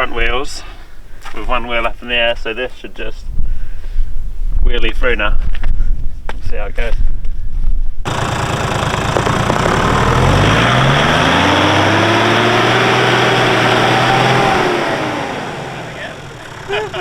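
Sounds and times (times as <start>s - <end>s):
engine revving hard: 8.1s - 17.0s.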